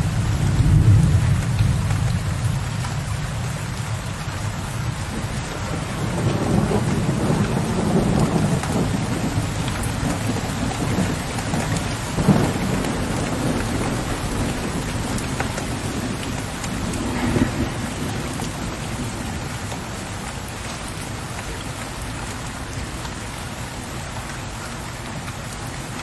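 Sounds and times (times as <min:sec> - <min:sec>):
distant rolling thunder: 0:00.0 - 0:20.2
rain on a window ledge: 0:00.0 - 0:26.0.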